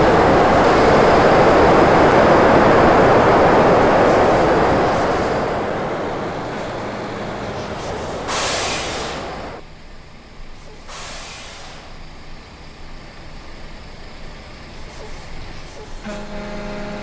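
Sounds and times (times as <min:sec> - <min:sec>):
vehicle tyres rushing on road: 0:00.0 - 0:09.6.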